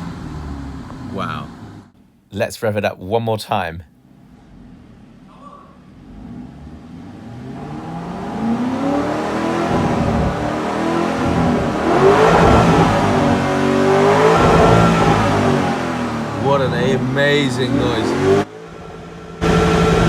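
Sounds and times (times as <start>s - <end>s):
car engine revving: 0.0s - 2.0s, 4.0s - 20.0s.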